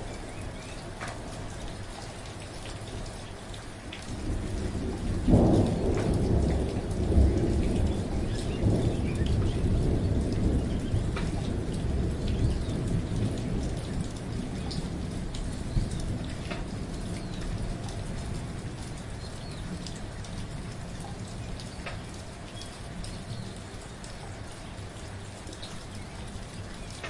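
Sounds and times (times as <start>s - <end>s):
steady rain: 0.0s - 27.0s
thunder rumbling and cracking: 4.0s - 23.6s.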